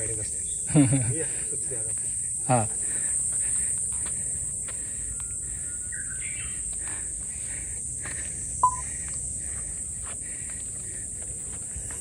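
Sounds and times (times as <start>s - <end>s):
insects droning high-pitched: 0.0s - 12.0s
softer repeating insect calls: 0.0s - 12.0s
sharp click with short beep: 8.6s - 8.8s.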